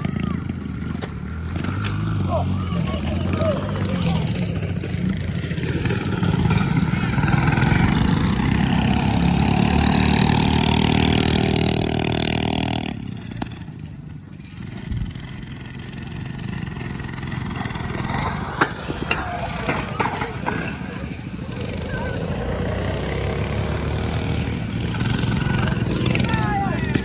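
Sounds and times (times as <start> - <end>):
mini bike engines revving: 0.0 - 27.0.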